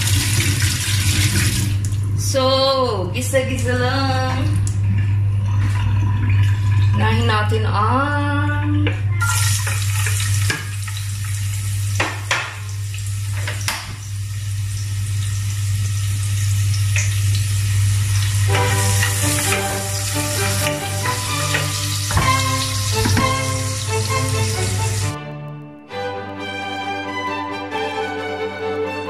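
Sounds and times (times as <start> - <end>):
vegetables sizzling in a pot: 14.0 - 25.2
background music: 18.5 - 29.0.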